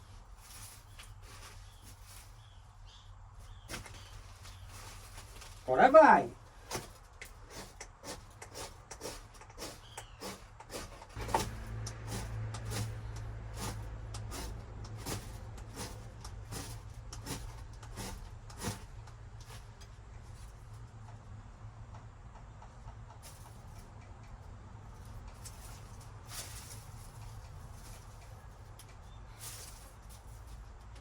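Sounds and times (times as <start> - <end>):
fire steel scraping strikes: 7.5 - 19.6
low rumble: 11.2 - 19.0.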